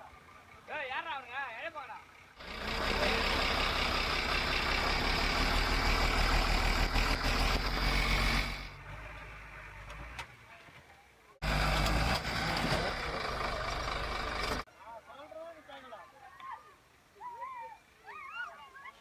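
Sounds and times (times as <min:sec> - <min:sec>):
diesel engine running: 0:02.0 - 0:10.2, 0:11.4 - 0:14.7.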